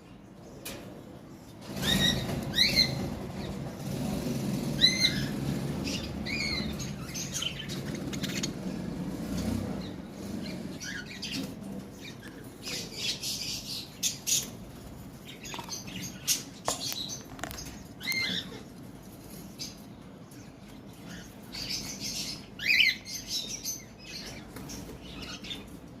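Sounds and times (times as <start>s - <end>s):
scratchy bird chatter: 1.2s - 26.0s
budgerigars chirping: 1.7s - 14.6s, 15.3s - 18.7s.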